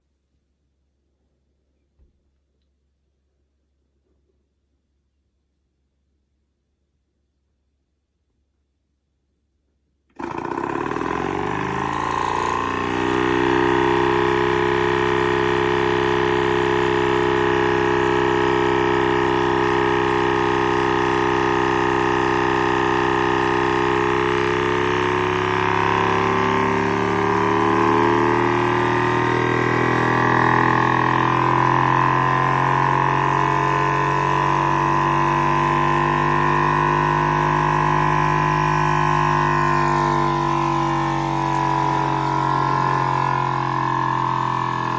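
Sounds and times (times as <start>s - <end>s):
engine droning hum: 10.2s - 44.9s.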